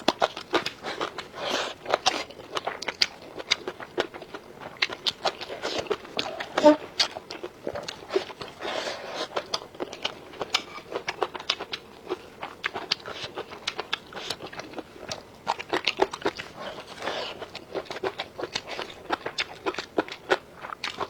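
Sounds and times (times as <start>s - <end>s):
wet chewing and crunching: 0.0s - 21.0s.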